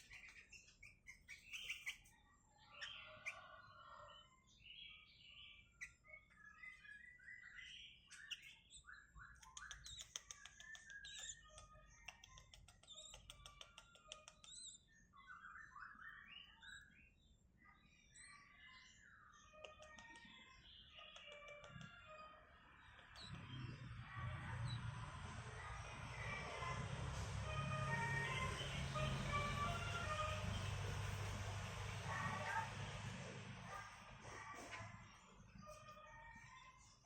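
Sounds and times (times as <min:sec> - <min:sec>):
bird chirping: 0:00.0 - 0:37.0.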